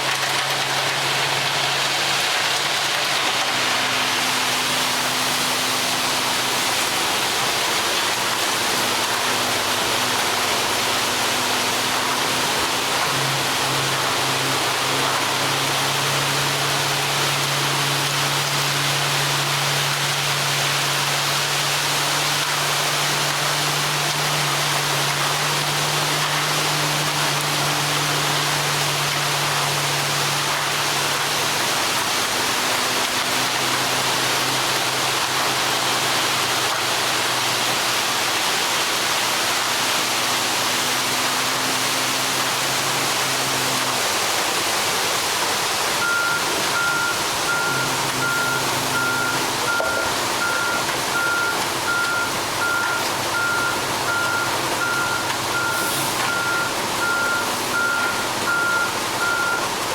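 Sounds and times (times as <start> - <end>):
diesel truck engine running: 0.0 - 59.9
backup alarm beeping: 46.0 - 59.7.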